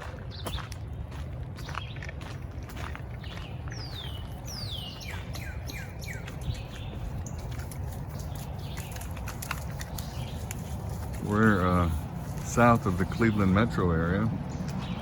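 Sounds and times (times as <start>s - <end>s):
footsteps walking: 0.0s - 13.7s
songbirds whistling: 0.2s - 0.8s, 3.1s - 11.9s, 12.5s - 15.0s.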